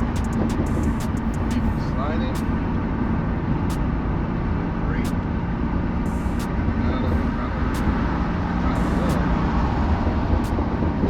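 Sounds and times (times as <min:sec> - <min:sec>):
short sharp ticks: 0:00.0 - 0:01.7
car engine running: 0:00.0 - 0:11.0
tyre and road noise: 0:00.0 - 0:11.0.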